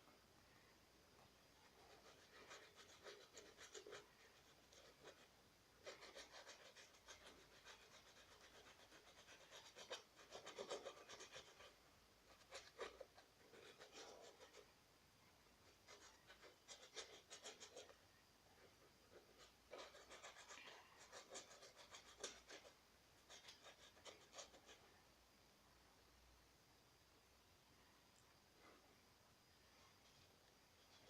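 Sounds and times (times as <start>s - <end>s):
paintbrush scratching and rubbing: 1.6s - 14.7s, 15.6s - 18.0s, 18.6s - 24.8s.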